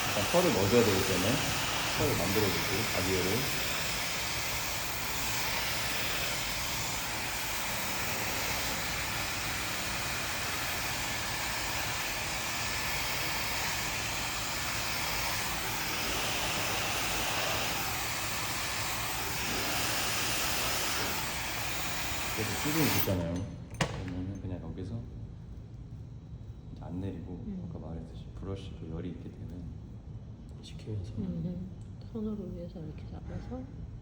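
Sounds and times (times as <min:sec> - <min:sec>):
hair dryer running: 0:00.0 - 0:24.1.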